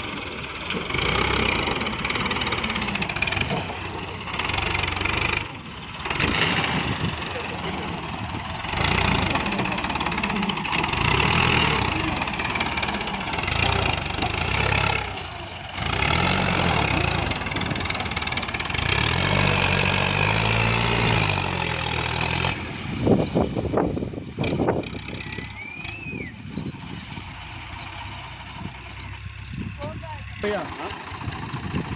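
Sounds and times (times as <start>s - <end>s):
tractor engine revving: 0.0s - 31.9s
short whistle: 25.3s - 26.4s.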